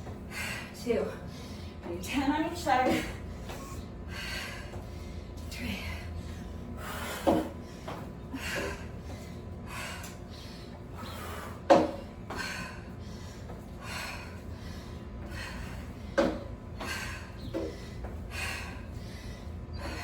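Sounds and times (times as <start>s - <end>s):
person breathing heavily: 0.0s - 1.9s, 2.9s - 20.0s
feet thumping on box: 7.1s - 9.3s, 11.6s - 12.6s, 15.2s - 18.3s.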